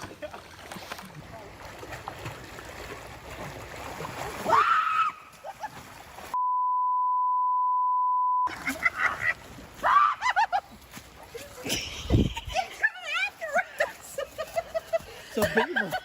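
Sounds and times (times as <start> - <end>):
censor bleep tone: 6.4 - 8.5.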